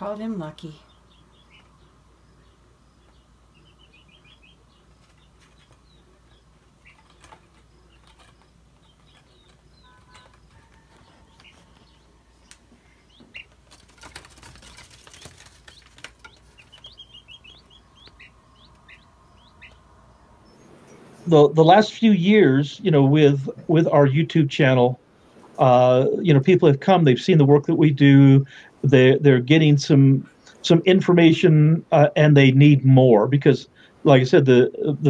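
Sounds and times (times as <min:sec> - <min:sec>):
small birds chirping: 0:00.0 - 0:35.0
wings flapping: 0:04.3 - 0:19.8.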